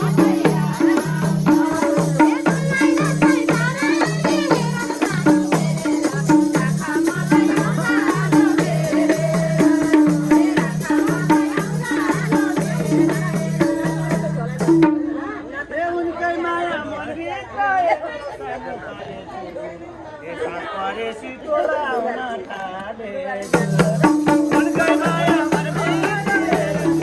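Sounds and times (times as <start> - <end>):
rattling shaker: 0.0 - 14.8, 23.4 - 27.0
hand drum beating: 0.0 - 15.1, 23.4 - 27.0.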